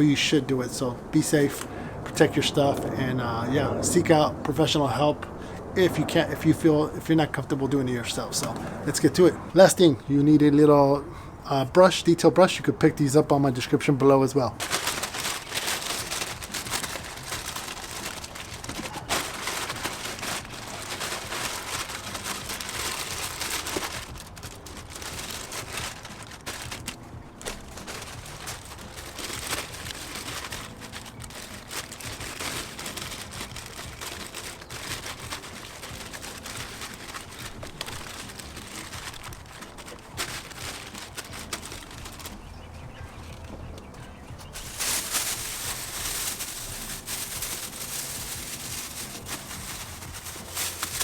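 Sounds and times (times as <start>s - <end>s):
plastic bags crinkling: 13.0s - 42.6s, 44.4s - 51.0s.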